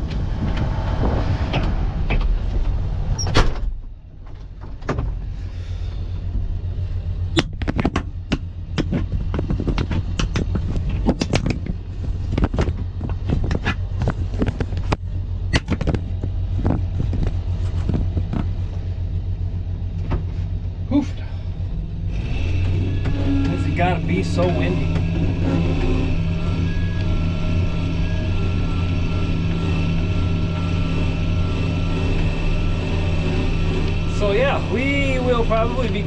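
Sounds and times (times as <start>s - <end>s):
wind buffeting microphone: 0.0s - 3.7s, 7.3s - 19.6s
engine running steadily: 0.0s - 36.0s
sharp clicks and rattles: 7.2s - 20.3s.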